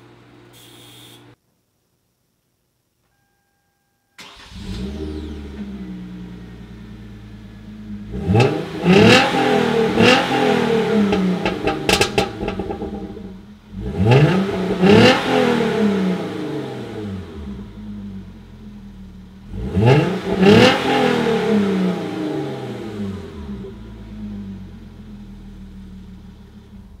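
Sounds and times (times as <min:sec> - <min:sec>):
car exhaust idling and revving: 0:04.5 - 0:27.0
exhaust pops: 0:07.9 - 0:15.3.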